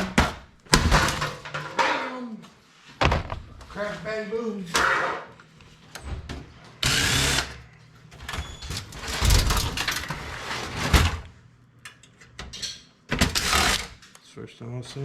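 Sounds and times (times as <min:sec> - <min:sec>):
power drill running: 0:06.8 - 0:07.6, 0:13.3 - 0:14.0.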